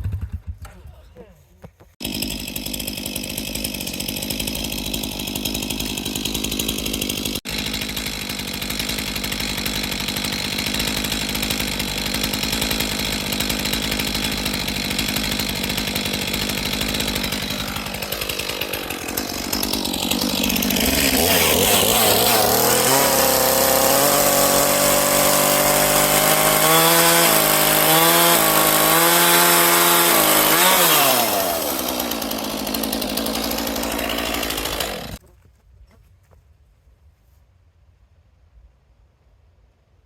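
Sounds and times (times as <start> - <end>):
chainsaw engine running: 1.9 - 35.2.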